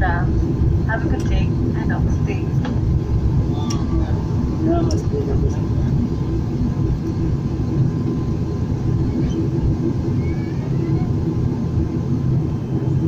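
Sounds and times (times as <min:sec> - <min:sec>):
aircraft engine and propeller rumble: 0:00.0 - 0:13.0.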